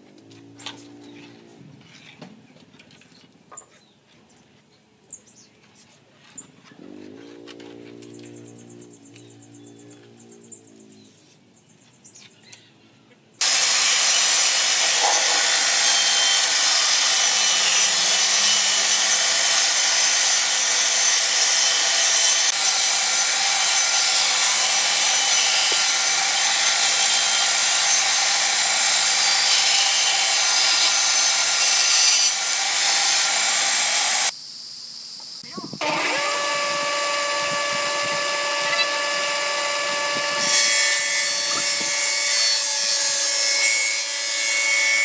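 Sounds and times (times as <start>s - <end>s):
band saw cutting wood: 13.4s - 34.3s, 35.8s - 45.0s.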